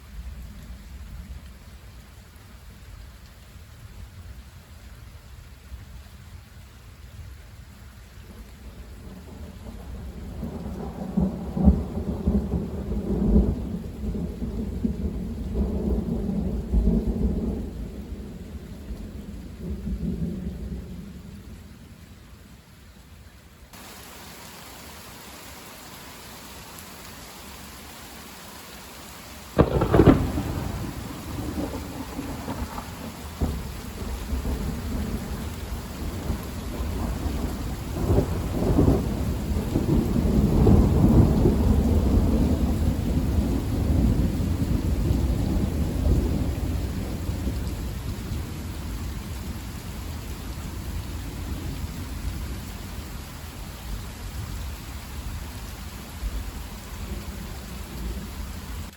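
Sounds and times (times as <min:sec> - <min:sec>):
steady rain: 0:00.0 - 0:58.9
thunder cracks and rumbles: 0:09.1 - 0:21.0, 0:29.6 - 0:49.3.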